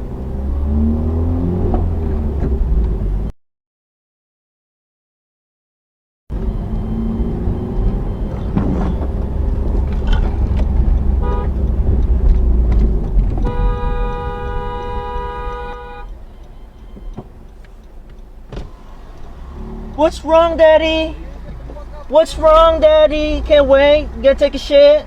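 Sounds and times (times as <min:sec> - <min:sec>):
vehicle road noise rumble: 0:00.0 - 0:03.3, 0:06.3 - 0:25.0
car horn: 0:11.1 - 0:11.9, 0:13.3 - 0:16.3.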